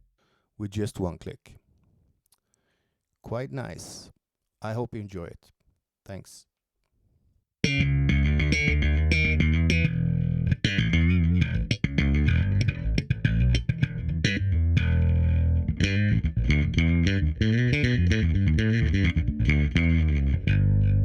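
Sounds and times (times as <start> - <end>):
electric bass guitar plucking: 7.6 - 21.0.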